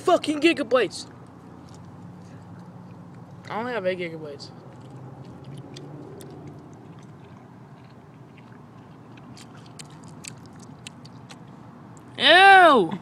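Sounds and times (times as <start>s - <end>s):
wet chewing mouth clicks: 1.1s - 3.5s, 4.5s - 12.1s.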